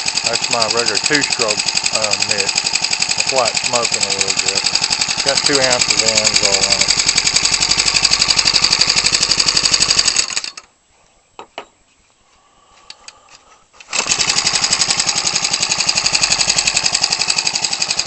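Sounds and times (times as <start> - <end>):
engine running with propeller: 0.0 - 10.5, 14.0 - 18.0.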